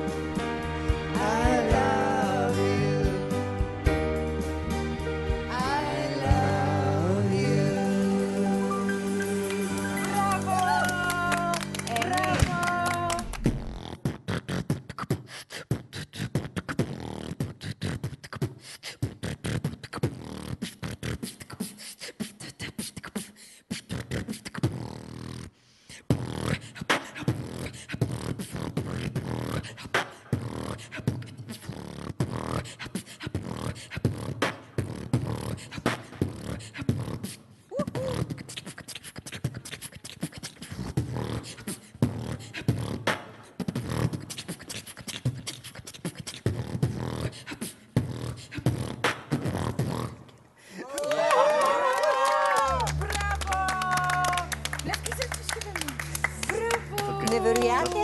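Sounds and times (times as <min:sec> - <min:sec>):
person beatboxing: 0:10.6 - 0:50.5, 0:53.4 - 0:58.0.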